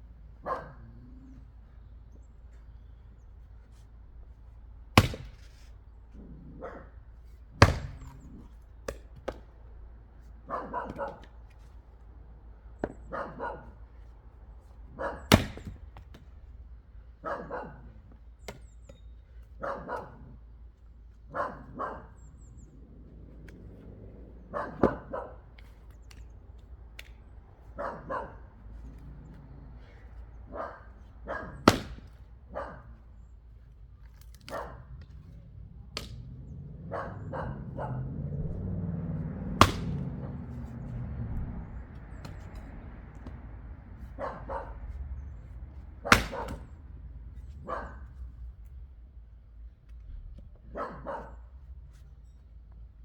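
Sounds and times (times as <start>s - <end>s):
dog barking: 0.4s - 1.4s, 6.2s - 7.0s, 10.4s - 11.3s, 13.0s - 13.8s, 14.9s - 15.3s, 17.2s - 18.0s, 19.6s - 20.4s, 21.3s - 22.8s, 24.4s - 25.6s, 27.7s - 31.6s, 32.5s - 33.0s, 34.5s - 35.4s, 36.5s - 39.2s, 44.0s - 45.0s, 46.0s - 46.6s, 47.6s - 48.2s, 50.6s - 51.5s
axe chopping wood: 4.9s - 5.7s, 7.5s - 9.6s, 10.9s - 11.6s, 15.2s - 16.3s, 18.4s - 19.0s, 31.5s - 32.3s, 35.9s - 36.3s, 39.5s - 40.7s, 42.1s - 43.4s, 46.0s - 46.8s.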